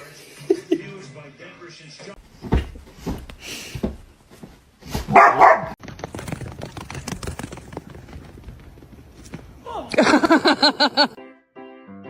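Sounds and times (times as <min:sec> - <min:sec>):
dog barking: 0:05.1 - 0:05.8.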